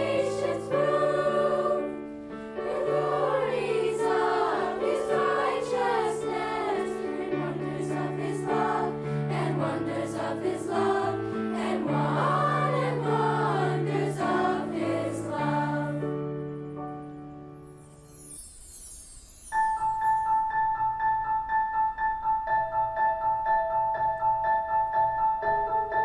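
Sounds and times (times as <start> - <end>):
choir singing: 0.0 - 16.4
instrumental accompaniment: 0.0 - 26.0.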